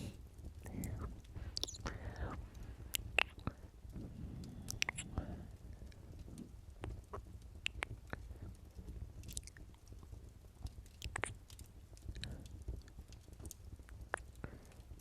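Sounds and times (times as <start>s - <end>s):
wet lip smacks: 1.6s - 1.9s, 2.9s - 3.5s, 4.7s - 5.3s, 5.9s - 8.3s, 9.2s - 9.6s, 10.8s - 12.4s, 13.9s - 14.4s.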